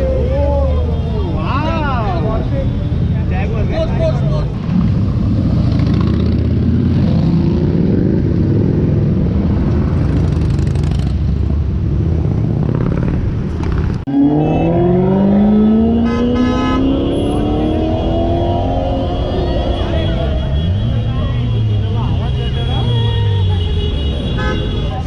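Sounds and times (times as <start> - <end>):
street traffic: 0.0 - 25.0
car horn: 14.1 - 25.0.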